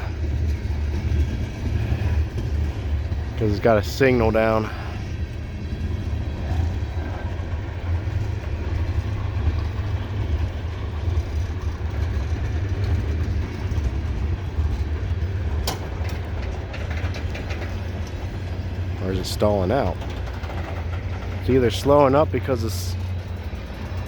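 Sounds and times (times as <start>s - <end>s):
diesel locomotive rumble: 0.0s - 24.0s.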